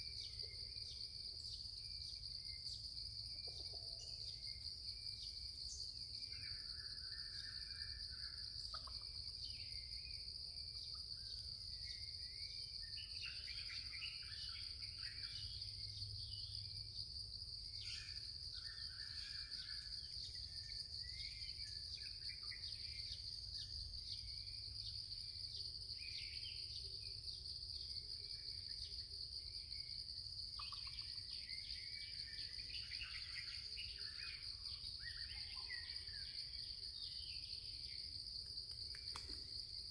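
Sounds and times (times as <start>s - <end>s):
insect chorus drone: 0.0s - 39.9s
small birds chirping: 30.5s - 38.0s.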